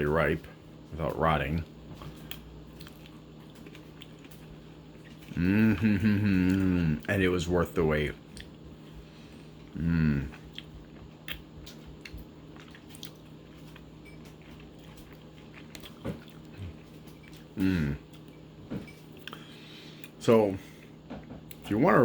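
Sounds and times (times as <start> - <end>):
chewing with wet mouth clicks: 2.0 - 7.2, 8.2 - 18.5, 19.1 - 20.2, 21.5 - 21.7
person humming: 5.3 - 7.0, 9.8 - 10.3, 17.6 - 18.0.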